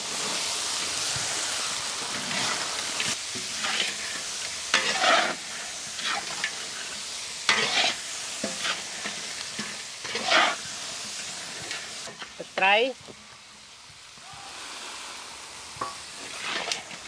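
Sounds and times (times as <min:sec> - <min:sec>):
food sizzling in hot oil: 0:00.0 - 0:17.0
utensil stirring and scraping: 0:02.1 - 0:12.4, 0:16.2 - 0:17.0.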